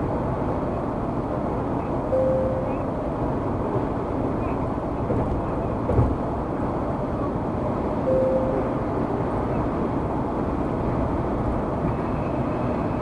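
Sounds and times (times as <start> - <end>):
car interior road noise: 0.0 - 13.0
faint steady tone: 2.1 - 3.1, 8.0 - 9.7.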